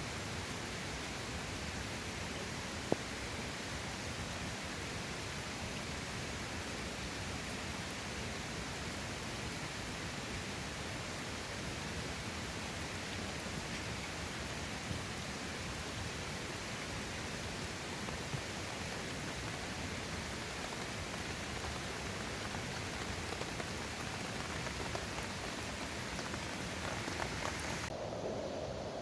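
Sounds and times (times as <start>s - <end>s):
water hissing: 16.0s - 27.9s.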